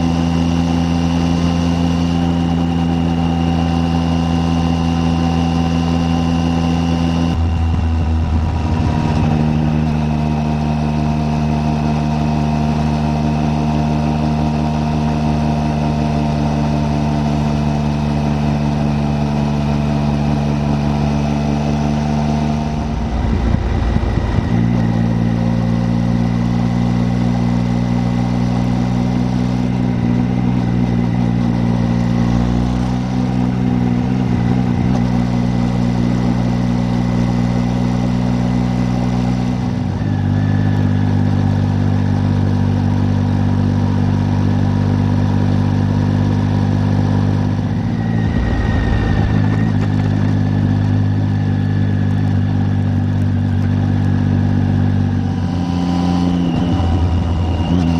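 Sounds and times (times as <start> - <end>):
motorcycle engine running: 0.0 - 57.9.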